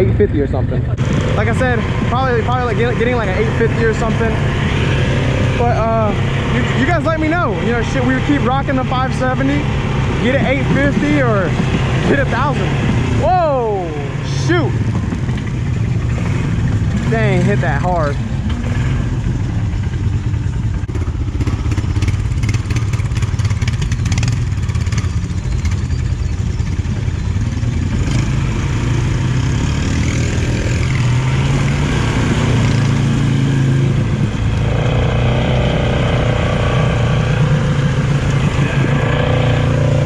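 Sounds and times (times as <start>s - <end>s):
quad bike engine revving: 0.0s - 40.0s
knocks and clatter: 14.8s - 17.1s.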